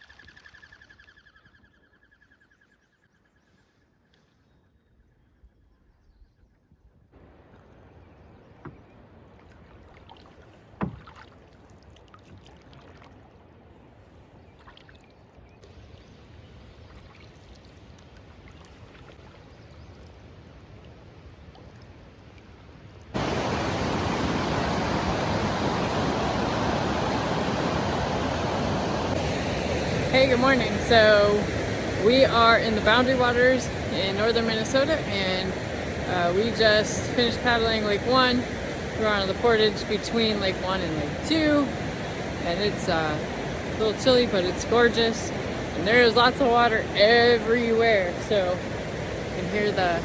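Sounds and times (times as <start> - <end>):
paddle splashing water: 7.4 - 15.8, 16.5 - 19.8, 23.2 - 50.0
paddle knocking hull: 8.5 - 9.0, 10.7 - 11.3
rapids rushing: 23.2 - 50.0.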